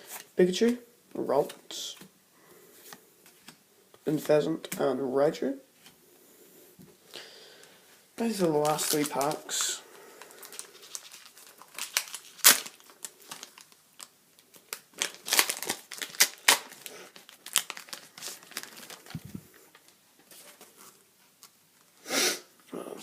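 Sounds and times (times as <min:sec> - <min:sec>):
foil wrapper tearing and crinkling: 0:08.5 - 0:19.2.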